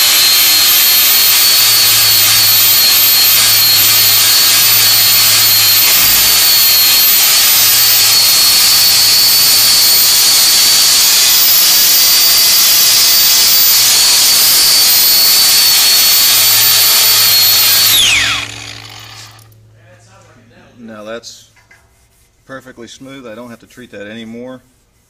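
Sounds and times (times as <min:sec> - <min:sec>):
angle grinder grinding metal: 0:00.0 - 0:19.6
grinder spinning down: 0:00.0 - 0:19.6.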